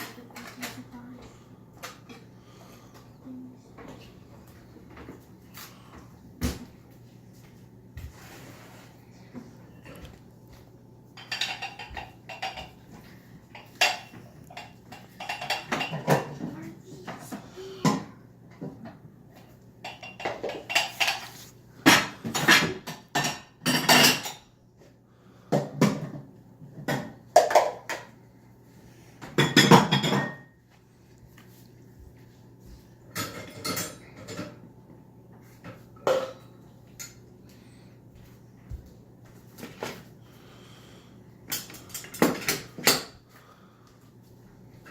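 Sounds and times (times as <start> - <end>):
dishes and cutlery clattering: 11.2 - 16.5, 19.8 - 24.6, 29.3 - 30.6, 33.1 - 34.6, 36.0 - 37.2.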